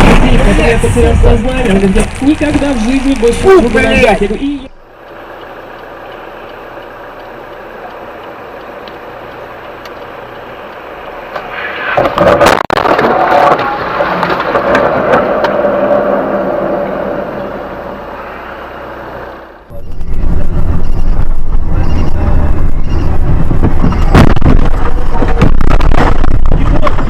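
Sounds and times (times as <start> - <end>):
car crash impact: 0.0 - 2.7, 11.5 - 17.4, 23.5 - 27.0
vehicle running: 0.0 - 27.0.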